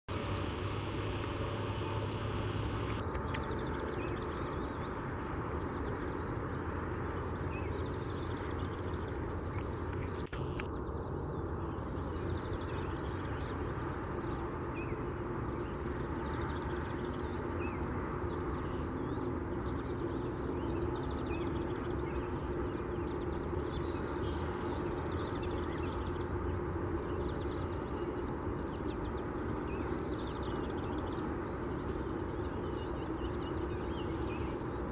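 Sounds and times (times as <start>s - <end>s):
small birds chirping and singing: 0.1s - 5.0s.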